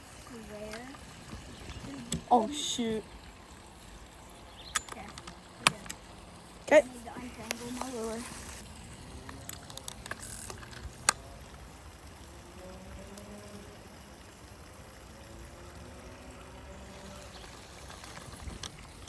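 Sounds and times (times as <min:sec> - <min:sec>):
creek water flowing: 0:00.0 - 0:19.0
handling clicks: 0:04.7 - 0:06.0.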